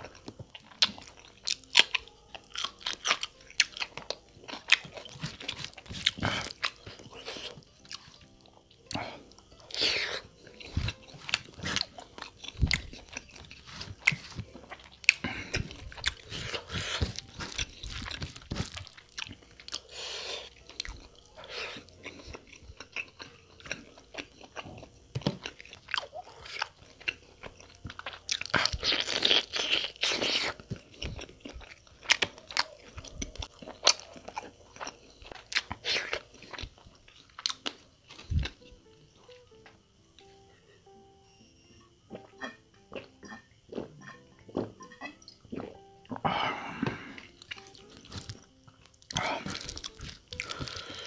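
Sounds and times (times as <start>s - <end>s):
wet chewing with mouth clicks: 0.0s - 39.4s, 42.1s - 51.0s.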